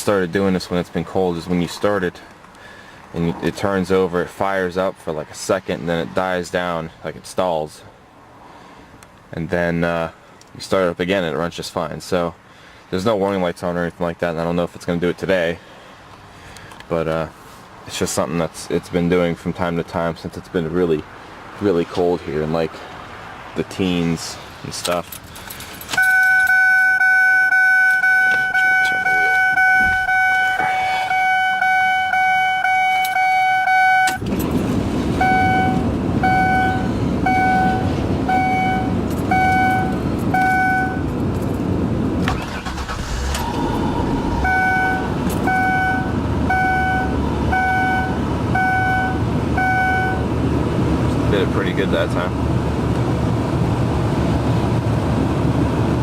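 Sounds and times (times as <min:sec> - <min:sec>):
car engine cranking: 0:24.8 - 0:32.3, 0:33.0 - 0:49.9
car warning chime beeps: 0:26.0 - 0:34.2, 0:35.2 - 0:41.1, 0:44.4 - 0:50.3
car engine idling: 0:33.8 - 0:50.4.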